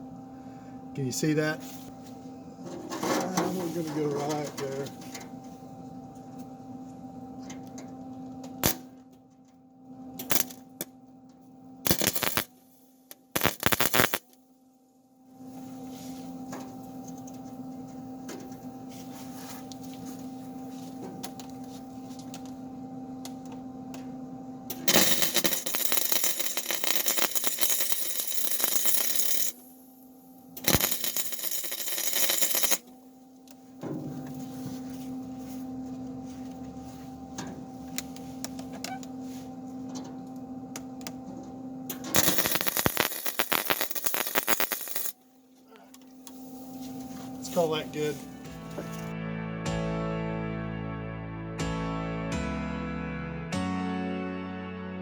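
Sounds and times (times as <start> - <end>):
welding arc crackling: 8.6 - 8.8, 10.2 - 10.6, 11.9 - 12.5, 13.1 - 14.3, 24.7 - 29.7, 30.6 - 32.8, 41.9 - 45.2
welder hum: 10.2 - 10.8, 11.8 - 12.5, 13.1 - 14.3, 24.6 - 39.6, 41.9 - 49.1.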